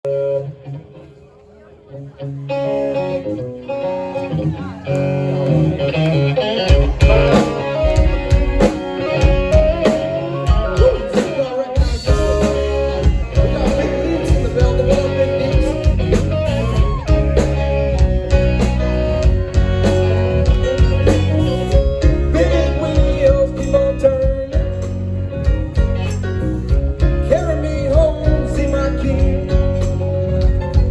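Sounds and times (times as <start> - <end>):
electric guitar with bent notes: 0.1 - 30.9
bass guitar: 1.9 - 30.9
drum kit beat: 6.7 - 30.9.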